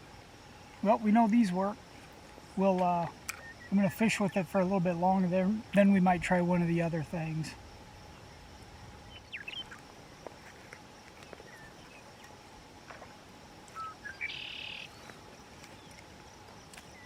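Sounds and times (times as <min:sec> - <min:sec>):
songbirds chirping: 0:00.0 - 0:17.0
buzzy bird trill: 0:02.4 - 0:05.8, 0:08.9 - 0:09.8, 0:13.8 - 0:15.9.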